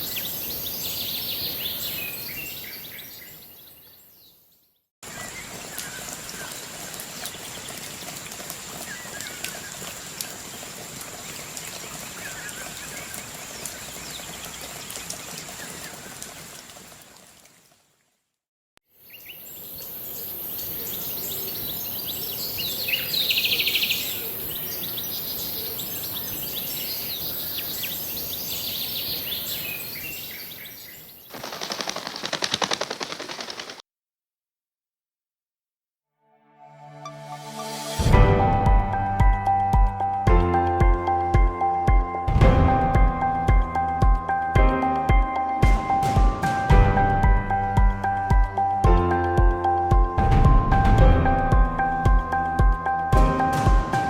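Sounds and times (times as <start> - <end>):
birds chirping: 0.0 - 10.8, 19.0 - 33.8.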